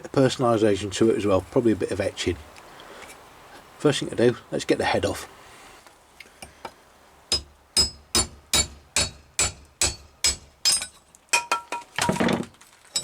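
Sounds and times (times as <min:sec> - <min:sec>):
hammer striking metal: 0:07.3 - 0:11.8.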